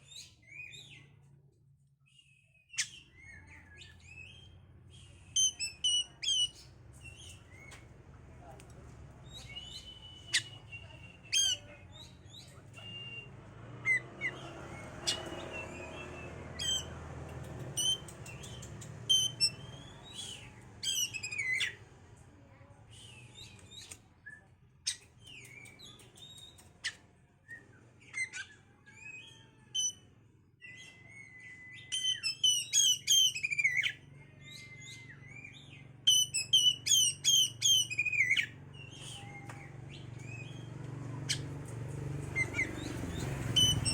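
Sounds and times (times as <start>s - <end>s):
bird song whistles and chirps: 0.0s - 1.2s, 2.1s - 7.8s, 9.2s - 16.9s, 17.7s - 21.8s, 30.6s - 40.7s, 42.4s - 43.9s.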